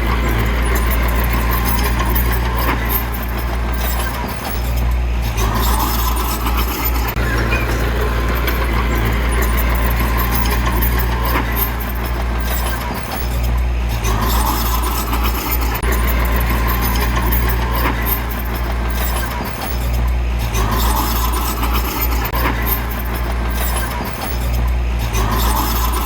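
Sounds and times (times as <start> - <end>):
diesel machine engine droning: 0.0 - 26.0.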